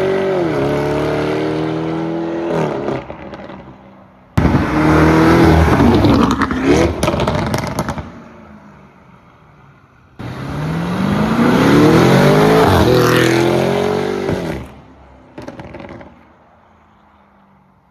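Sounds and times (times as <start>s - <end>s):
car engine accelerating hard: 4.4s - 8.0s, 10.2s - 14.7s.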